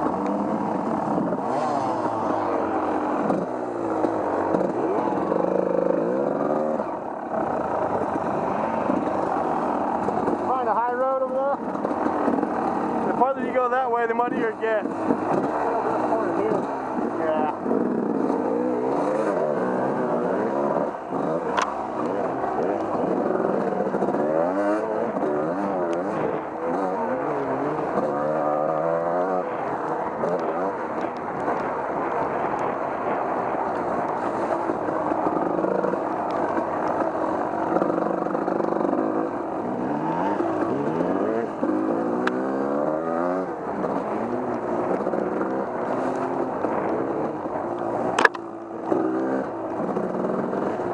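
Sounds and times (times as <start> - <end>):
off-road vehicle engine revving: 0.0 - 50.9.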